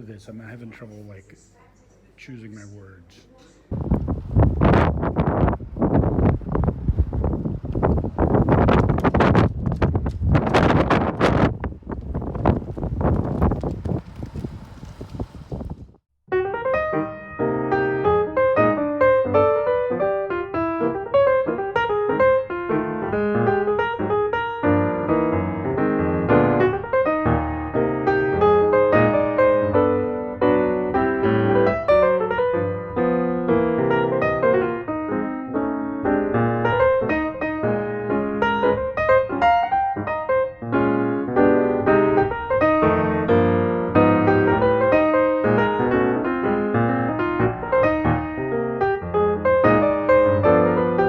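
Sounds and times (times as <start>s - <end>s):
piano music: 16.3s - 51.0s.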